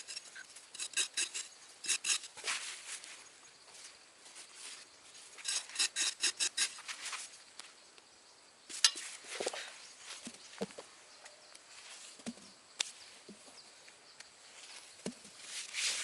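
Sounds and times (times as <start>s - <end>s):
scraping and clicking handling: 0.0s - 3.1s, 5.4s - 7.3s.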